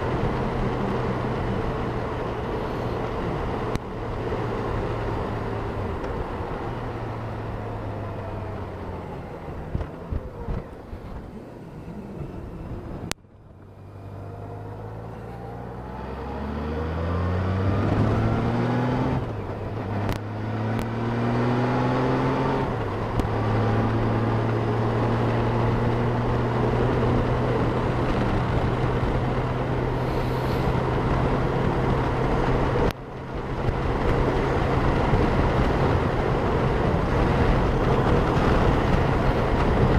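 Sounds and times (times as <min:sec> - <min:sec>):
motorcycle engine accelerating: 0:00.0 - 0:39.9
wind rush at helmet: 0:22.6 - 0:39.9.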